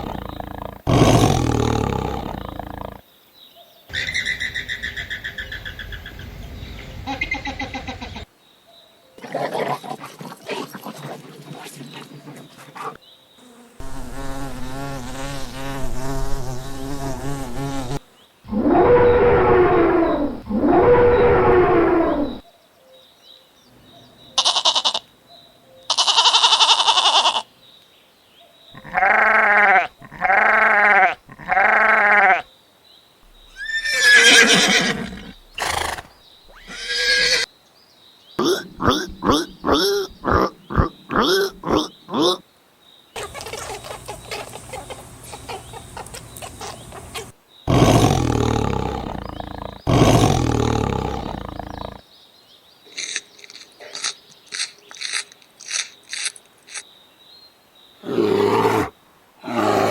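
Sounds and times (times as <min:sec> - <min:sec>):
farm animal calls: 0:00.0 - 0:03.0, 0:03.9 - 0:08.3, 0:28.8 - 0:32.4, 0:33.3 - 0:37.5, 0:38.4 - 0:42.4, 0:43.2 - 0:52.0.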